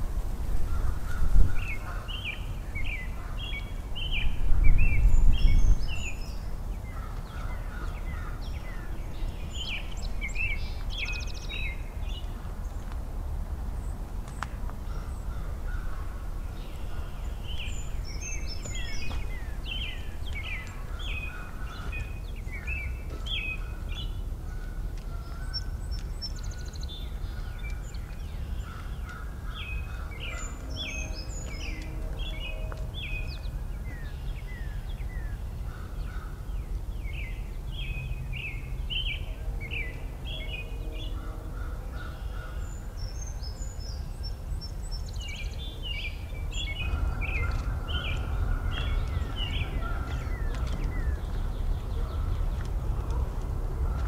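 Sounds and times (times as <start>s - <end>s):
songbirds singing and chirping: 0.0s - 54.0s.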